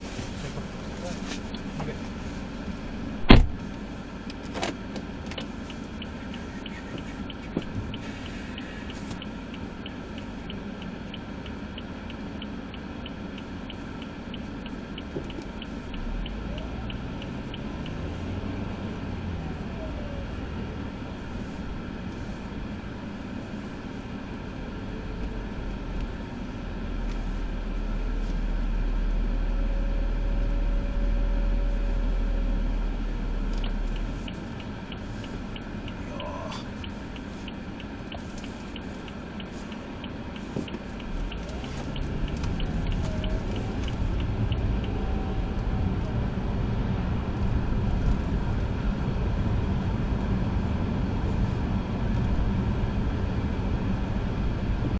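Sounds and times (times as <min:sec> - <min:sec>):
car engine humming: 0:00.0 - 0:54.9
light regular ticking: 0:03.7 - 0:18.7, 0:33.3 - 0:46.2.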